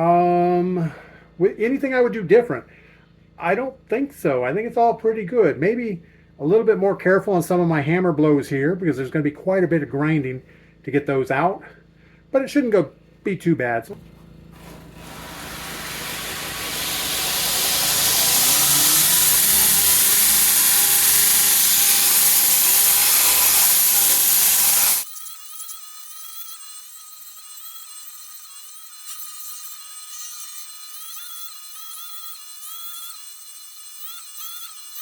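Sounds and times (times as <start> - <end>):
power grinder grinding steel: 14.5 - 35.0.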